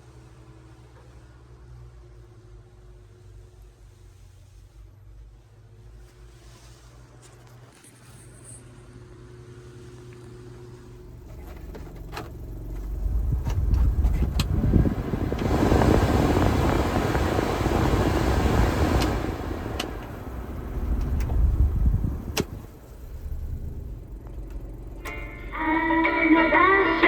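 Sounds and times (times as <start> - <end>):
small truck engine running: 10.8 - 27.0.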